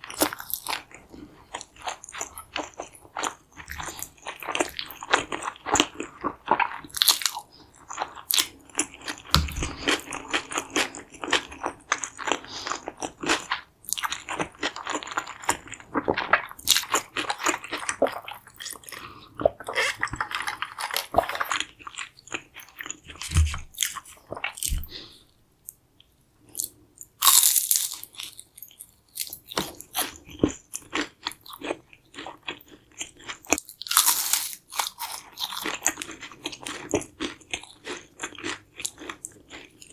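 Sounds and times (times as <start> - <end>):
crunchy chewing and biting: 27.2 - 39.9.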